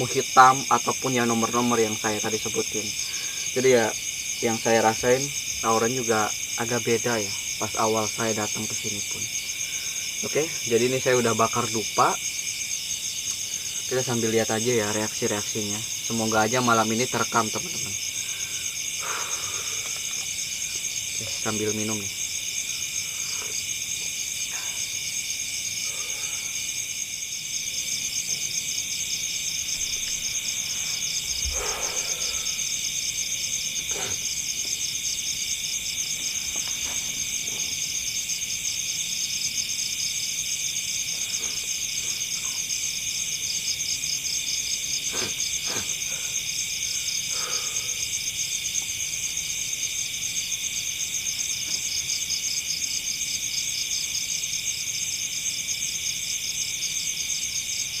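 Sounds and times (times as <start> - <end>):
crickets and insects trilling: 0.0 - 58.0
faint knocks and rustles: 36.1 - 38.0.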